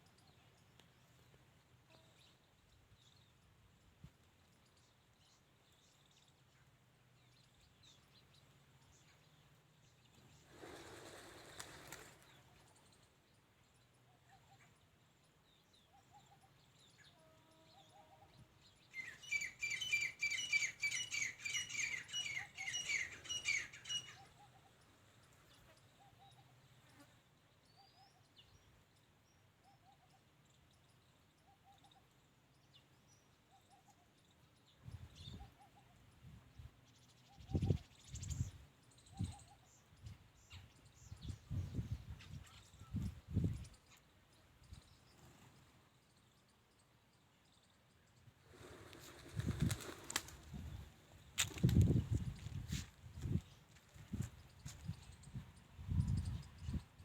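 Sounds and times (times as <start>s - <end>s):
faint soft bird notes: 0.0s - 57.0s
rapid high bird chirping: 18.9s - 24.5s.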